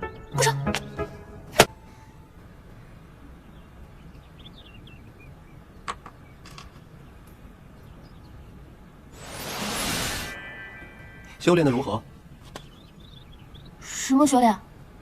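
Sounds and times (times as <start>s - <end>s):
faint outdoor ambience: 0.0s - 15.0s
sharp swish: 9.2s - 10.6s.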